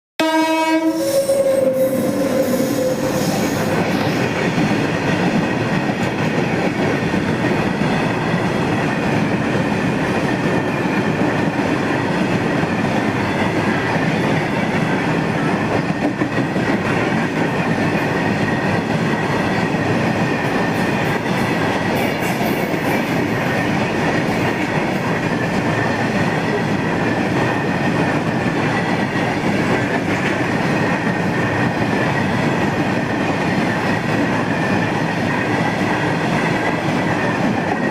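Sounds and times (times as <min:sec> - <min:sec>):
train horn: 0:00.2 - 0:03.7.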